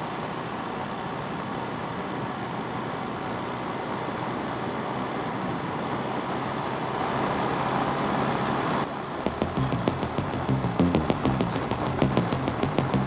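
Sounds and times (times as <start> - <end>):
motorcycle engine hum: 9.3 - 13.0.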